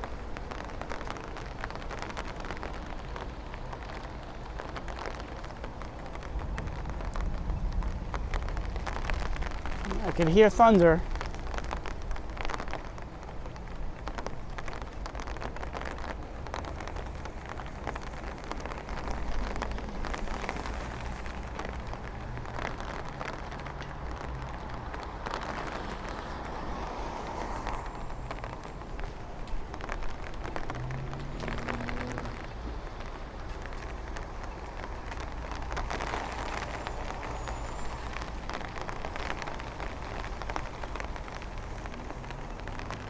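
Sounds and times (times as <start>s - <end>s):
scattered crackles: 0.0s - 43.0s
vehicle engine passing by: 30.6s - 32.8s.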